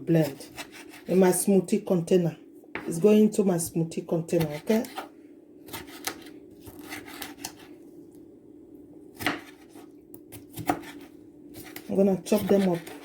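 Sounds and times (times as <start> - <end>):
knife cutting tomatoes on board: 0.1 - 1.2, 4.3 - 5.1, 5.7 - 7.7, 9.2 - 13.0.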